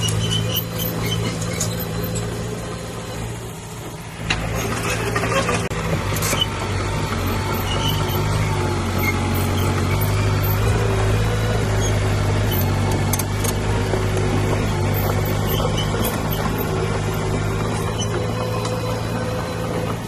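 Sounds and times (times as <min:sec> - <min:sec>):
heavy diesel engine droning: 0:00.0 - 0:20.0.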